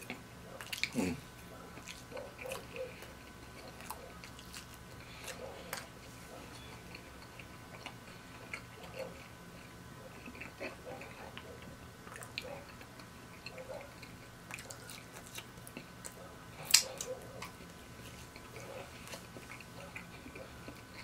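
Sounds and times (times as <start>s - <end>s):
chewing fried food: 0.0s - 21.0s
wet mouth clicks: 16.6s - 17.6s
finger licking smack: 16.7s - 17.1s.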